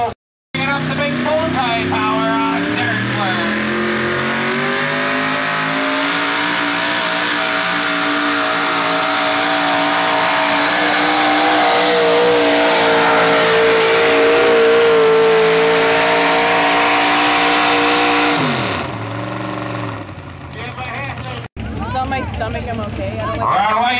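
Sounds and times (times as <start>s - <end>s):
truck engine at high revs: 0.0s - 21.8s.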